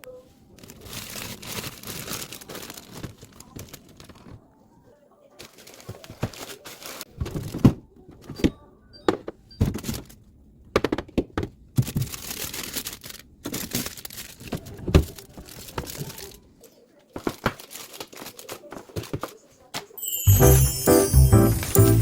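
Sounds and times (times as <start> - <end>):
packaging rustling and crinkling: 0.4 - 4.4, 5.4 - 7.6, 11.8 - 16.5, 17.2 - 19.4.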